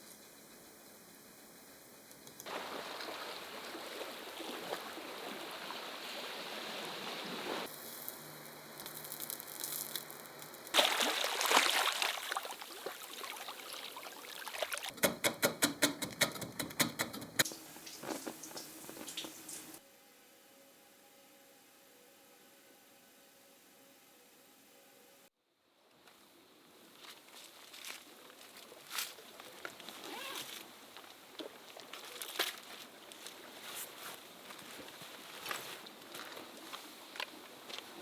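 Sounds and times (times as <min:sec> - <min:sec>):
running trickling water: 0:02.4 - 0:07.7, 0:10.8 - 0:15.0, 0:17.4 - 0:19.8.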